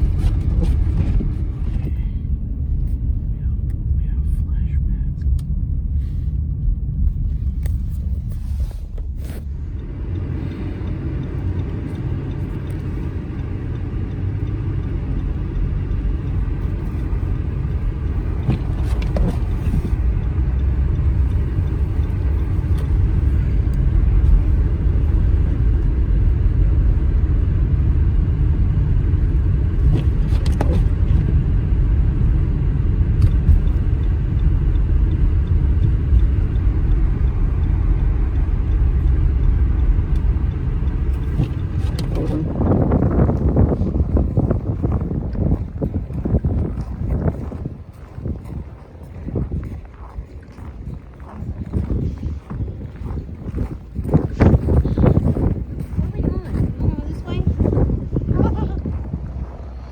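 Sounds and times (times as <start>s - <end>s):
car engine and tyres rumbling: 0.0s - 59.9s
faint ticks: 8.9s - 25.9s, 33.0s - 42.6s.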